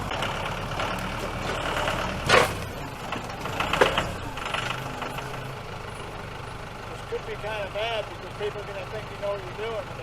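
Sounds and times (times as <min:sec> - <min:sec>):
tractor engine running: 0:00.0 - 0:10.0
loud clunks: 0:01.1 - 0:02.9.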